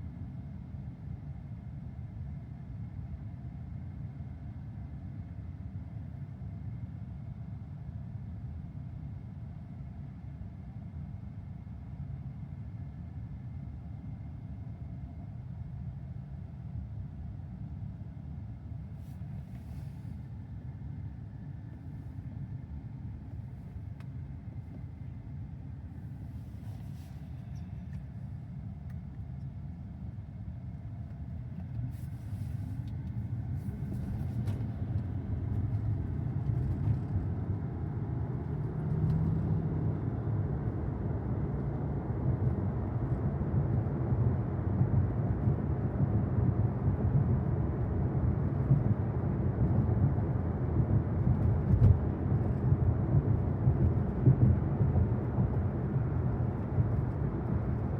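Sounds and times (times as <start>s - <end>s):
electric car road and tyre rumble: 30.7s - 57.9s.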